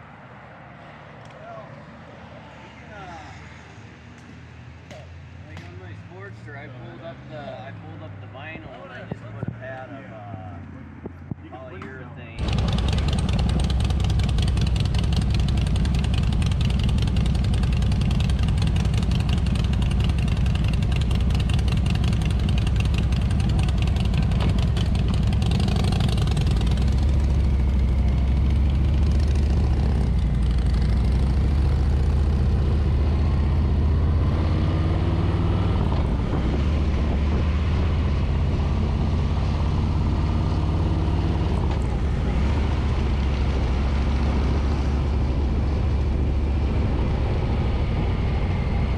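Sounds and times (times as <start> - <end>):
motorcycle engine running: 12.4 - 34.6
wind rush: 34.0 - 39.2, 41.8 - 48.9.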